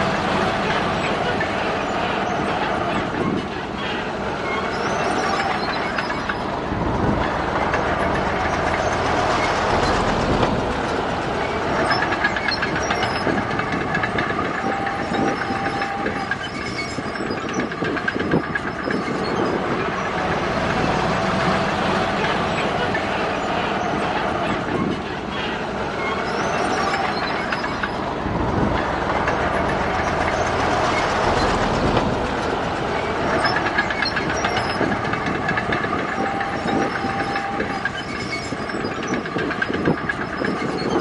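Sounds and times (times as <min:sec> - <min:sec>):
bulldozer diesel engine: 0:00.0 - 0:41.0
steel tracks clanking: 0:00.0 - 0:41.0
high squeal: 0:00.6 - 0:28.2, 0:28.8 - 0:41.0.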